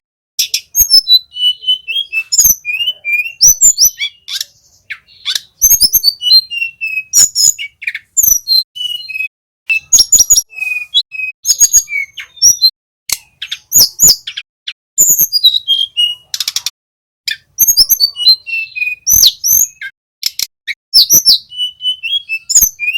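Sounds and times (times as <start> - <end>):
sharp bird clicks: 0.4 - 1.0, 1.9 - 10.4, 11.2 - 18.0, 19.1 - 21.4
bird whistled song: 0.4 - 16.7, 17.3 - 22.9.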